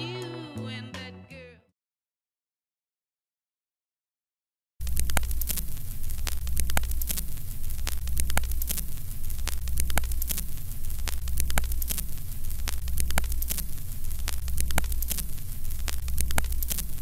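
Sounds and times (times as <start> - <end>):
crackling pops and clicks: 4.8 - 17.0.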